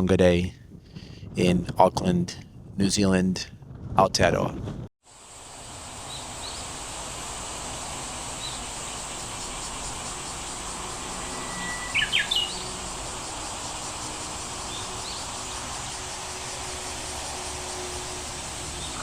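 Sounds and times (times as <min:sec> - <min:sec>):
insect hum: 0:05.0 - 0:19.0
bird calling: 0:08.3 - 0:19.0
level whistle: 0:11.2 - 0:12.6.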